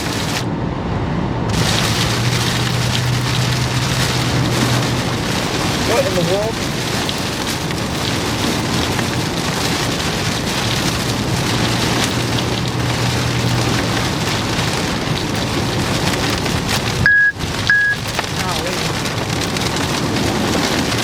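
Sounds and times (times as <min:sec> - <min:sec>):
heavy rain on a car: 0:00.0 - 0:21.0
short high beep: 0:17.1 - 0:18.0.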